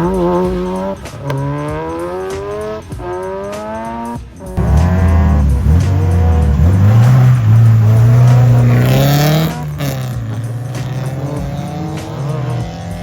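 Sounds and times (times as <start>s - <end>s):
car engine revving: 0.0s - 13.0s
tyre noise: 0.0s - 13.0s.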